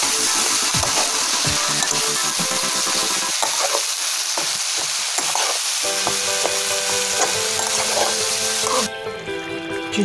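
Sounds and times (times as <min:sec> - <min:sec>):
food sizzling in frying pan: 0:00.0 - 0:08.9
spatula scraping pan: 0:03.4 - 0:08.9.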